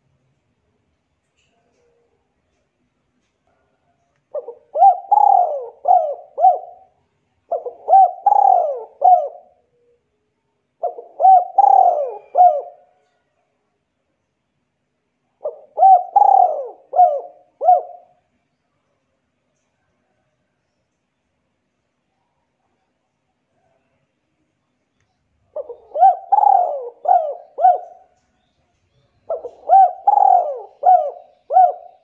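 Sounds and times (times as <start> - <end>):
bird hooting call: 4.3 - 10.0, 10.8 - 13.0, 15.4 - 18.2, 25.5 - 28.2, 29.3 - 32.0.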